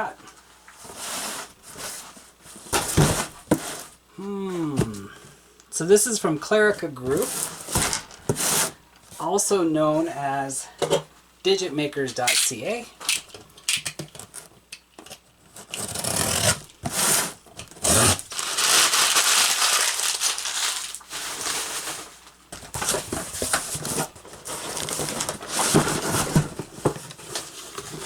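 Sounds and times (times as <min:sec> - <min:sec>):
packaging rustling and crinkling: 0:07.0 - 0:09.2, 0:15.4 - 0:28.0
packing tape tearing: 0:13.1 - 0:14.5, 0:15.5 - 0:26.6.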